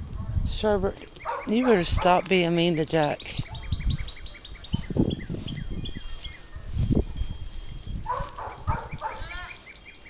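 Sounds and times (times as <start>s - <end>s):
songbirds chirping: 0.0s - 10.0s.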